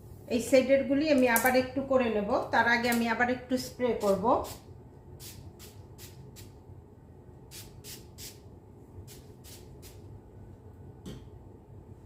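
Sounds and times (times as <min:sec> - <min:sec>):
hair spray bottle hissing: 0:05.2 - 0:06.5, 0:07.5 - 0:08.4, 0:09.0 - 0:10.0.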